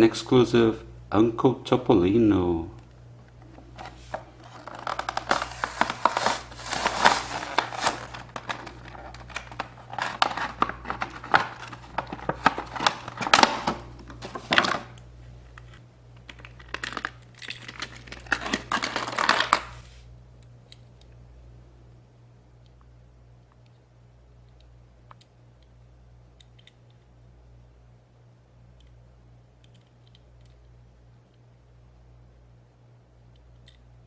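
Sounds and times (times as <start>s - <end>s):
faint steady low hum: 0.0s - 34.0s
plastic packaging crinkling and tearing: 3.8s - 15.0s, 16.3s - 19.8s.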